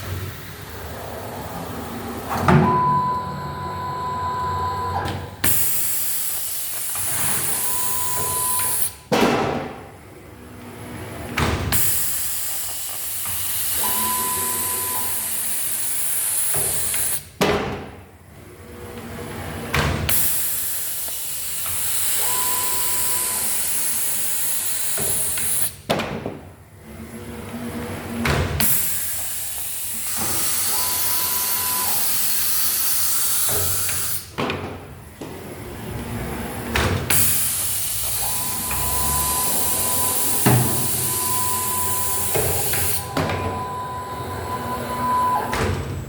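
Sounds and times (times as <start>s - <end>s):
machinery clunks: 1.1s - 6.0s, 34.4s - 46.0s
short high beep: 13.8s - 15.2s, 38.4s - 42.3s.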